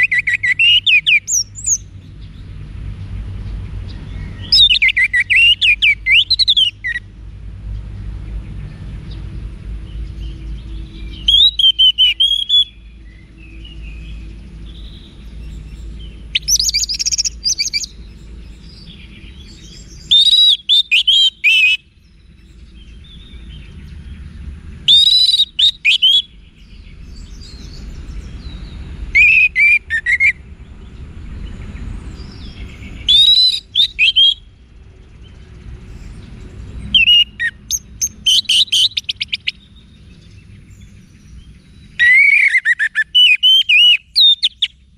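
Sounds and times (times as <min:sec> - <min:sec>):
thrush singing whistles: 0:00.0 - 0:01.9, 0:04.4 - 0:07.1, 0:10.9 - 0:13.6, 0:15.8 - 0:18.0, 0:18.8 - 0:22.0, 0:24.8 - 0:26.4, 0:29.1 - 0:30.5, 0:32.5 - 0:34.5, 0:36.9 - 0:39.7, 0:41.8 - 0:44.9.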